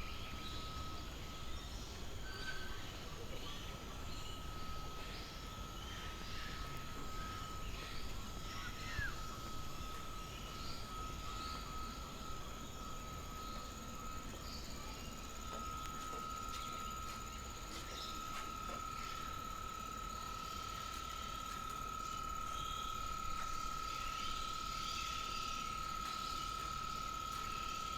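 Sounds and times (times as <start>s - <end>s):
thin steady high tone: 0.0s - 27.9s.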